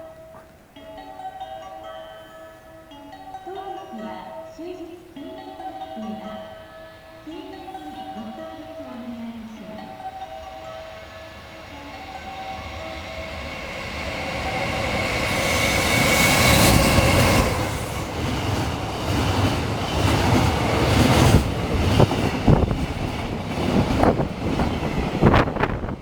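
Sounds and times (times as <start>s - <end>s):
freight train rumbling past: 6.9s - 26.0s
wheels clicking over rail joints: 11.9s - 26.0s.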